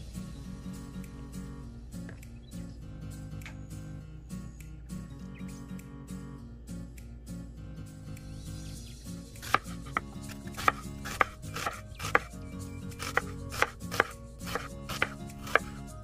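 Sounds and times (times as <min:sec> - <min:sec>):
knife chopping onion on wood: 0:09.4 - 0:16.0.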